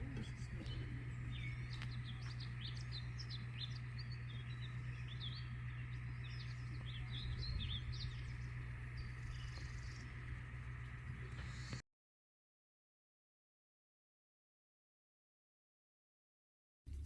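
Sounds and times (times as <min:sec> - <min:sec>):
small birds chirping: 0:00.0 - 0:11.8
steady low hum: 0:00.0 - 0:11.8.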